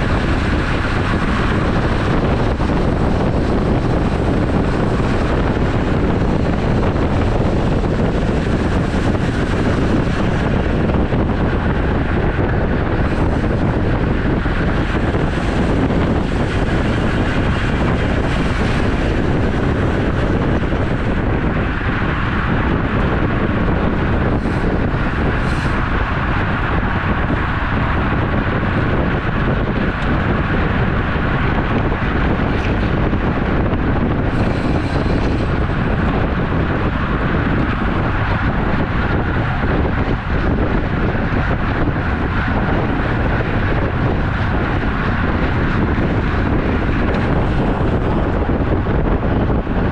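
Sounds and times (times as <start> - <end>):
wind rushing over microphone: 0.0 - 49.9.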